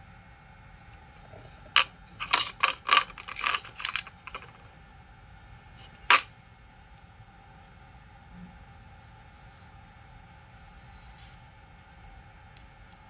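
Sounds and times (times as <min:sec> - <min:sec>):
light clicks and clatter: 0:01.2 - 0:04.6.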